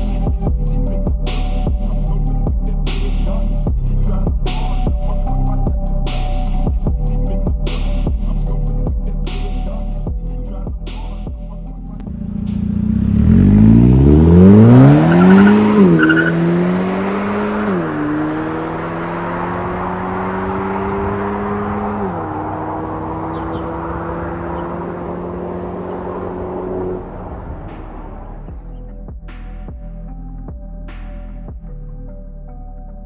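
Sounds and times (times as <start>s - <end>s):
car engine accelerating: 12.0s - 28.8s.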